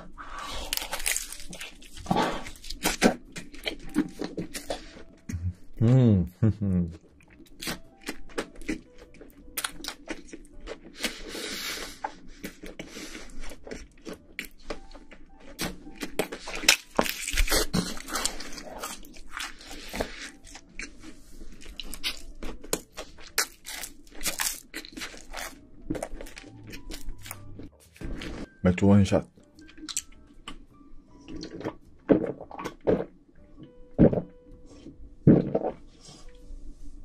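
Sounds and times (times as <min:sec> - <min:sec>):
chewing pizza: 0:00.7 - 0:28.5.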